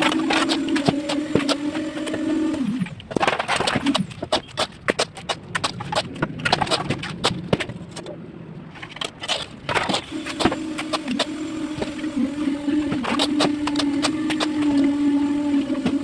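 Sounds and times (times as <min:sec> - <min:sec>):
steady machine hum: 0:00.0 - 0:04.1, 0:10.0 - 0:16.0.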